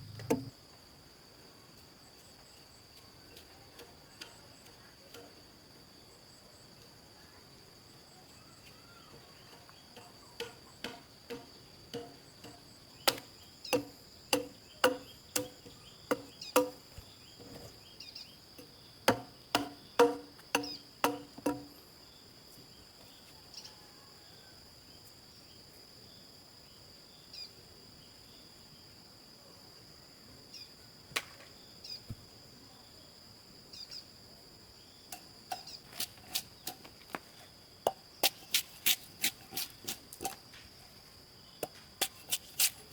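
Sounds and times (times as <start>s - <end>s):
sharp knocks: 0.0s - 0.5s, 19.1s - 21.7s
insects trilling: 0.0s - 42.9s.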